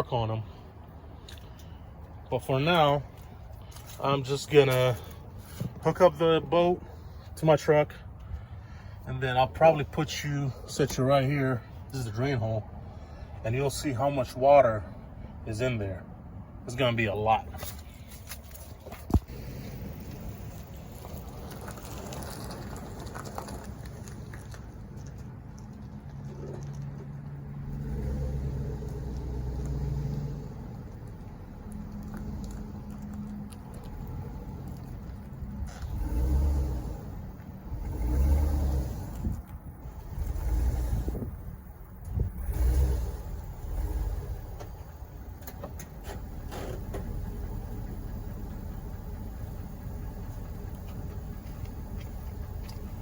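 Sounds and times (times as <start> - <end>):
truck engine running: 16.7 - 53.0.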